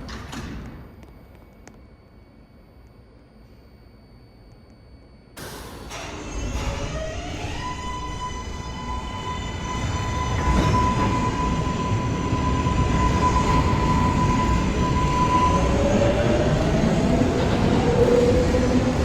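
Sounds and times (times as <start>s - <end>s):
train electric motor whine: 5.4s - 19.0s
wheels rumbling on rail: 5.9s - 19.0s.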